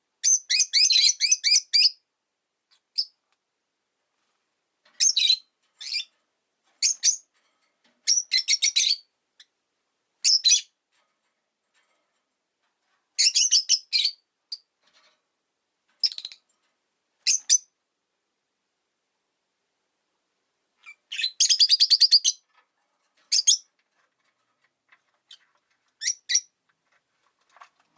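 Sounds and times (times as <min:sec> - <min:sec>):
lovebird shrill chirps: 0:00.2 - 0:02.0, 0:20.8 - 0:22.4, 0:26.0 - 0:26.5.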